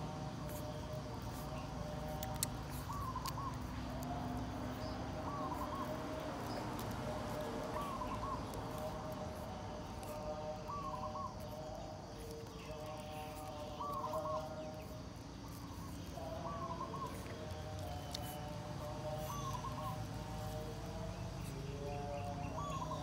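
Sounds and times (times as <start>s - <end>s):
outdoor background noise: 0.0s - 23.0s
bird wavering call: 2.7s - 6.6s, 10.0s - 21.1s.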